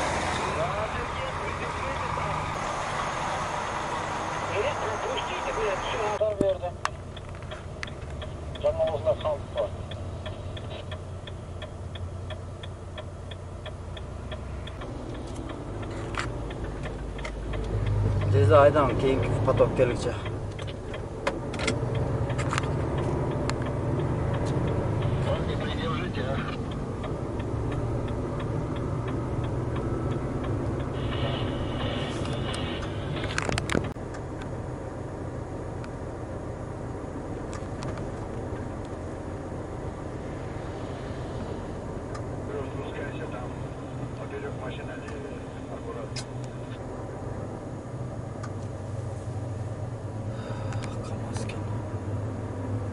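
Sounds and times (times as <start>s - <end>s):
diesel engine idling: 0.0s - 33.2s, 38.2s - 51.6s
indicator flasher ticking: 21.9s - 31.0s.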